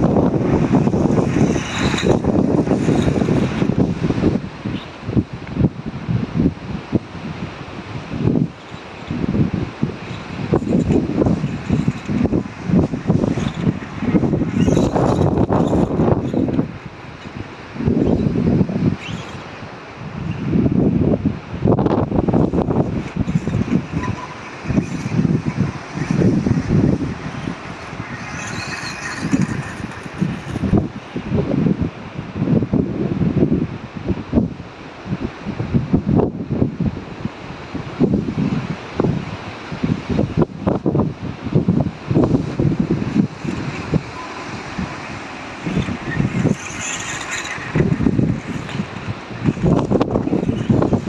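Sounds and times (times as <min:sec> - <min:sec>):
wind buffeting on microphone: 0:00.0 - 0:51.0
small electric motor whining: 0:00.1 - 0:05.0, 0:07.7 - 0:19.6, 0:22.0 - 0:31.4, 0:42.1 - 0:51.0.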